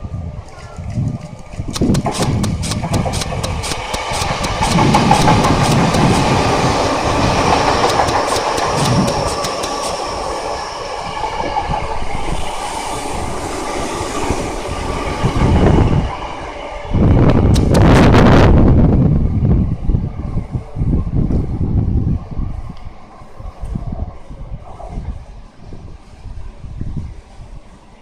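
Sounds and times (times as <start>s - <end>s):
train rumble: 0.0s - 28.0s
train wheels clacking over rail joints: 1.7s - 10.6s, 17.4s - 18.0s.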